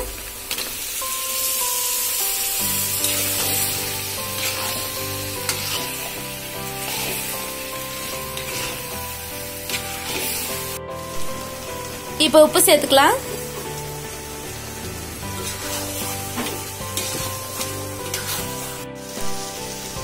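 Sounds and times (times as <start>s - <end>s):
chicken sizzling in oil: 0.0s - 20.0s
soft instrumental music: 0.0s - 20.0s
spatula stirring: 3.0s - 10.8s, 13.3s - 19.0s.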